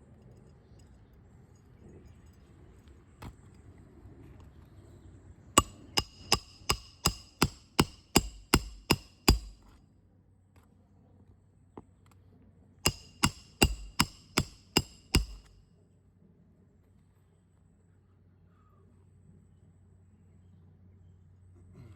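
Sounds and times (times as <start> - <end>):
hammer striking nails: 5.6 - 9.7, 12.8 - 15.5.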